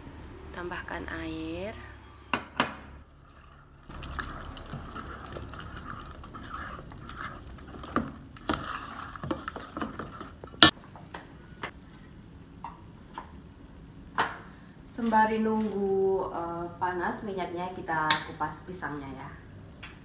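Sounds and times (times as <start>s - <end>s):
spoon stirring batter in metal bowl: 3.1s - 10.8s.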